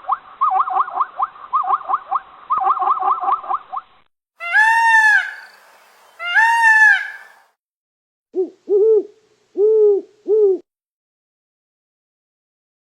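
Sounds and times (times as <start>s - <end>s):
long high arched animal calls: 4.4s - 7.4s
short low hoot-like calls: 8.4s - 10.7s.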